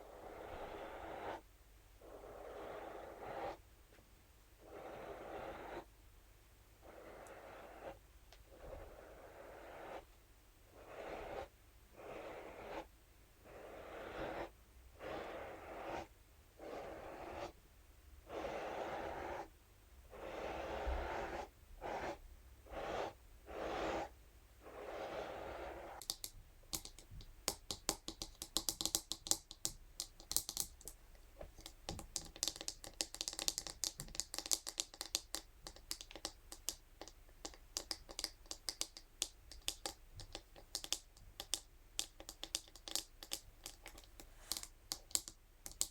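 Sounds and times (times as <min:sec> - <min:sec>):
brush scratching a surface: 0:10.7 - 0:17.6, 0:18.3 - 0:19.5, 0:20.1 - 0:26.2
light irregular tapping and clicking: 0:26.0 - 0:45.9.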